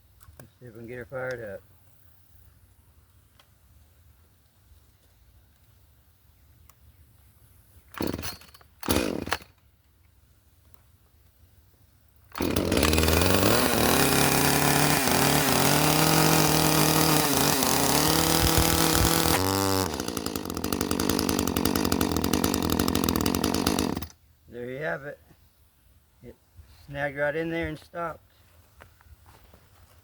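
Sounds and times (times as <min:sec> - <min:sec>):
chainsaw revving: 0:08.0 - 0:09.5, 0:12.3 - 0:24.1
pull-cord pulls: 0:17.0 - 0:20.0.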